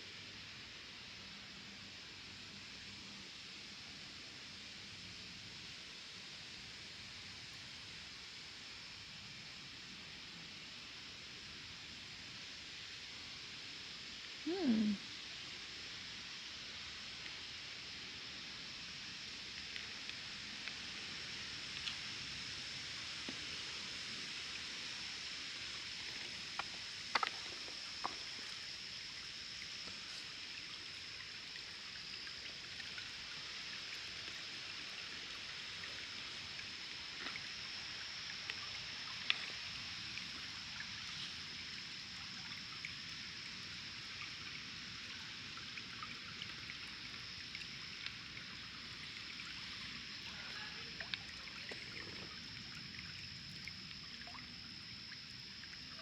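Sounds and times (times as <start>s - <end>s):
stream and waterfall flowing: 15.3s - 54.3s.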